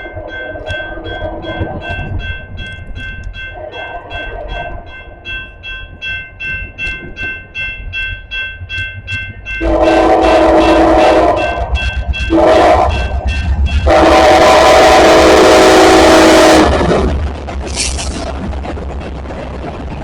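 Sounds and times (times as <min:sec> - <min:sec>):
crossing warning bell dinging: 0:00.0 - 0:19.0
freight train rumbling: 0:00.0 - 0:20.0
locomotive air horn blast: 0:09.6 - 0:17.0.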